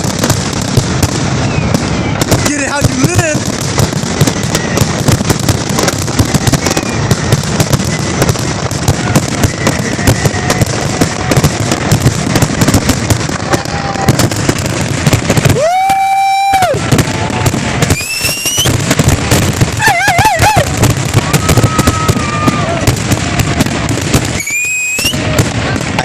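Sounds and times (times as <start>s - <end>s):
firework whistling: 0.0s - 26.0s
fireworks banging and crackling: 0.0s - 26.0s
rising whistle: 1.4s - 2.2s, 6.6s - 7.3s, 17.8s - 18.8s, 24.3s - 25.3s.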